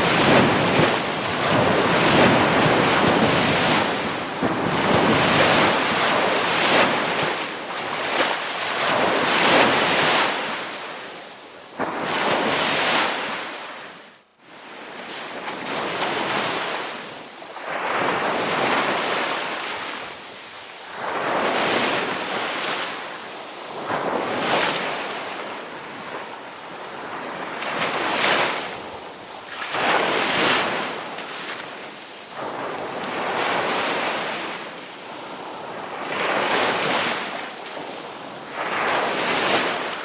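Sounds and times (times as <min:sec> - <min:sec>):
ocean waves breaking: 0:00.0 - 0:10.9, 0:27.0 - 0:40.0.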